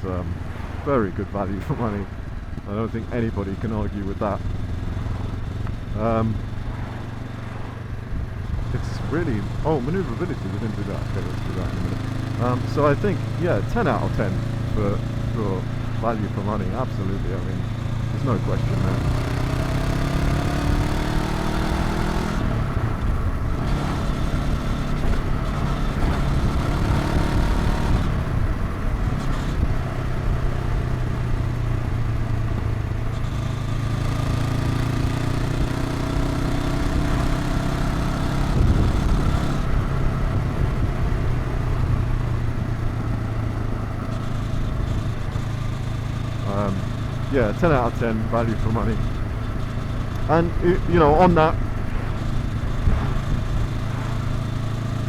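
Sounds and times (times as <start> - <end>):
motorcycle engine accelerating: 0.0 - 55.0
wind rushing past helmet: 49.0 - 55.0.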